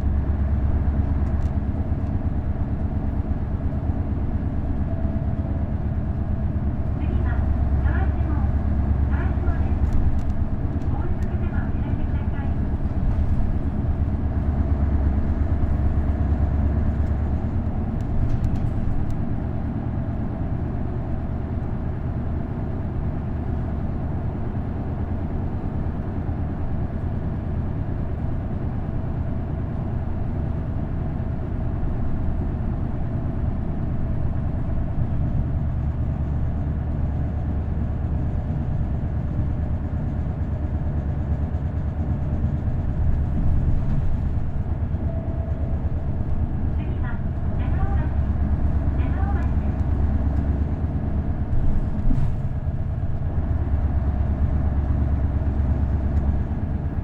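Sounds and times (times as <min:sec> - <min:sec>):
road noise: 0:00.0 - 0:21.4, 0:40.0 - 0:57.0
bus diesel engine drone: 0:00.0 - 0:57.0.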